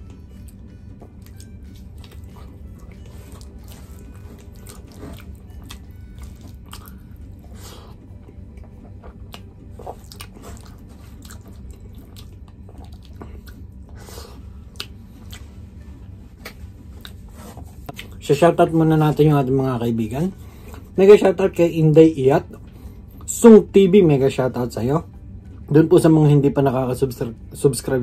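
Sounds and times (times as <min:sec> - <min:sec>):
steady low hum: 0:00.0 - 0:28.0
chewing and wet mouth smacks: 0:00.4 - 0:07.2, 0:09.0 - 0:14.0, 0:14.7 - 0:15.6, 0:16.4 - 0:18.2.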